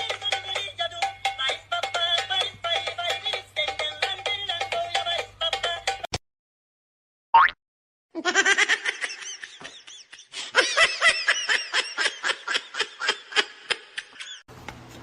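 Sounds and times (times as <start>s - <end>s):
rapid high-pitched laughter: 8.2s - 14.4s.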